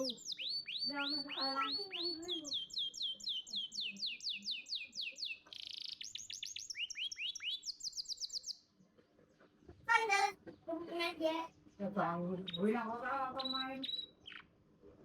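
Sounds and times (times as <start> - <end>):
canary singing: 0.0 - 8.8, 9.8 - 14.6.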